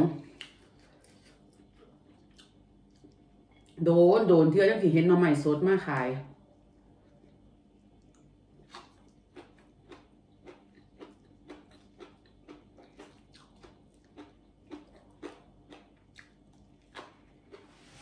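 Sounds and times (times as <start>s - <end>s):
wet chewing mouth smacks: 8.0s - 17.6s.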